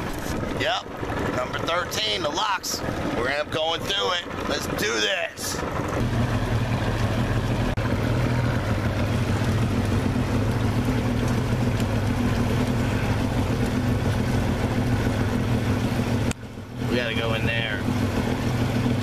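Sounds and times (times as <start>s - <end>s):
outboard motor running: 0.0s - 19.0s
wind and water hiss: 0.0s - 19.0s.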